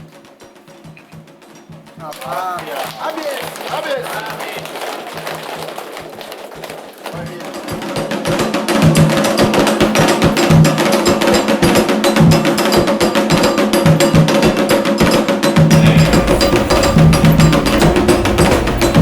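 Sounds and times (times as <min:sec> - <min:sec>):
drums playing fast rhythm: 0:01.2 - 0:19.0
struck bell or block: 0:15.7 - 0:19.0.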